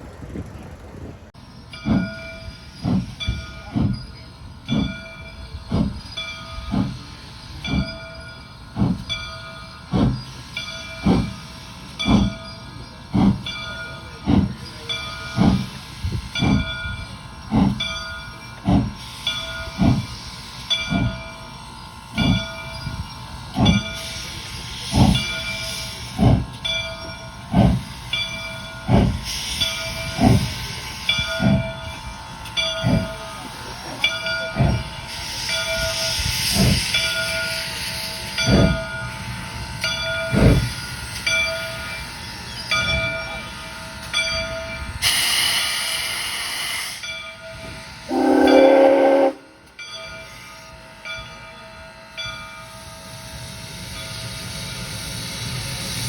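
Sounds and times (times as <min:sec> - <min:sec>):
train wheels clicking over joints: 0:00.0 - 0:50.7
hiss: 0:14.2 - 0:32.2, 0:32.8 - 0:44.1, 0:45.0 - 0:49.3, 0:52.6 - 0:56.0.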